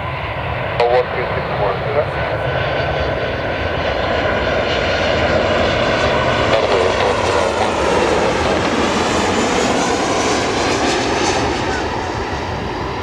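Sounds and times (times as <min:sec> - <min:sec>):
airliner engines running: 0:00.0 - 0:13.0
faint whining tones: 0:06.0 - 0:13.0.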